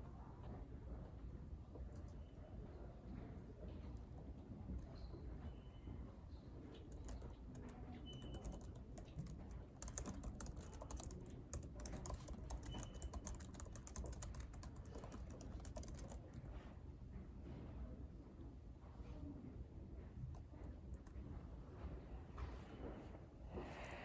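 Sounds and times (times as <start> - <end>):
low room hum: 0.0 - 24.0
computer keyboard typing: 6.9 - 16.4.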